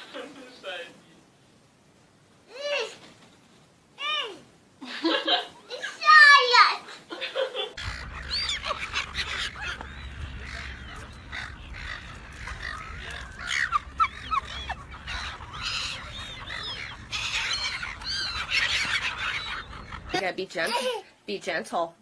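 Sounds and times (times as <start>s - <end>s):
low rumble: 7.8s - 20.2s
birds chirping and squawking: 7.8s - 20.3s.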